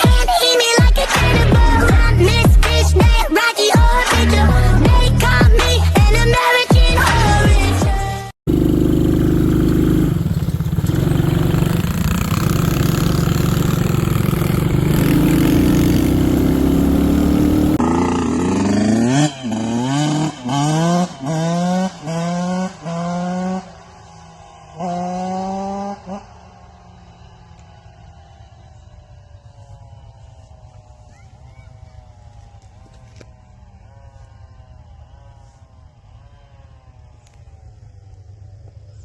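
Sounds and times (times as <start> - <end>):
dirt bike engine revving: 8.5 - 38.0.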